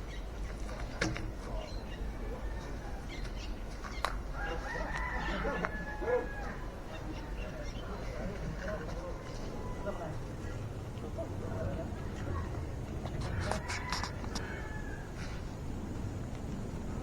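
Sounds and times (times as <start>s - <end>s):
rooster crowing: 4.3s - 6.9s, 13.2s - 15.5s.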